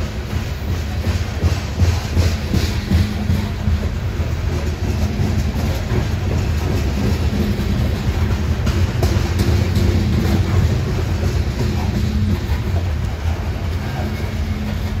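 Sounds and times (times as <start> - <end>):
freight train wheels rumbling: 0.0 - 15.0
clicks over rail joints: 0.1 - 15.0.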